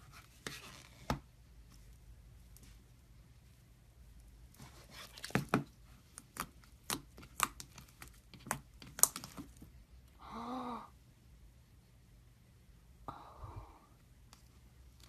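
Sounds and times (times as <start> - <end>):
slime popping and crackling: 5.2 - 9.6.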